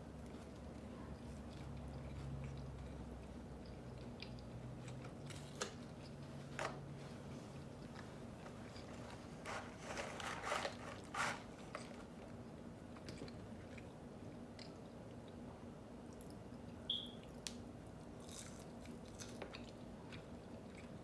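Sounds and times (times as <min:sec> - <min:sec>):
crunchy biting and chewing: 0:18.2 - 0:21.0.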